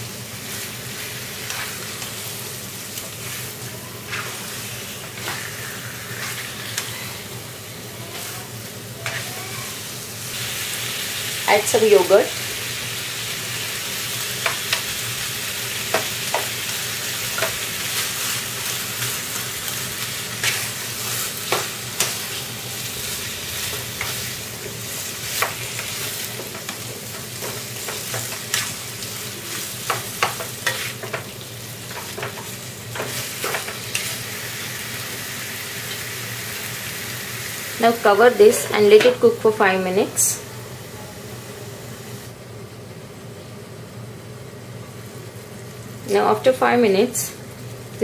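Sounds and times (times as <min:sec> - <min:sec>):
chicken sizzling in a pan: 0:00.0 - 0:42.4, 0:43.2 - 0:48.0
spatula scraping a pan: 0:01.4 - 0:02.1, 0:03.2 - 0:07.2, 0:29.5 - 0:31.3.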